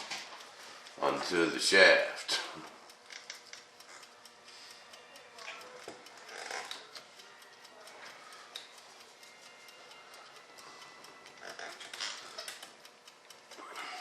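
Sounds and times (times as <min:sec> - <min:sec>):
small clicks and rustles of hands: 0:02.4 - 0:14.0.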